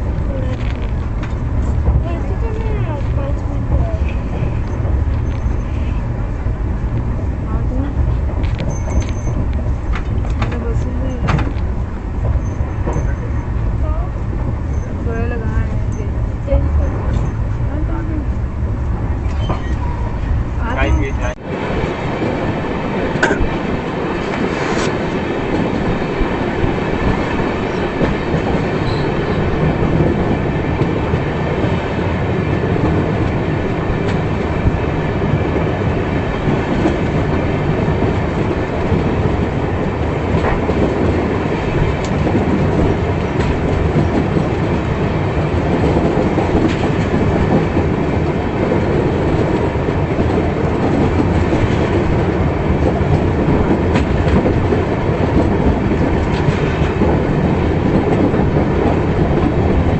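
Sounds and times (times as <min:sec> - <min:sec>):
rumble of train wheels on rails: 0:00.0 - 0:59.9.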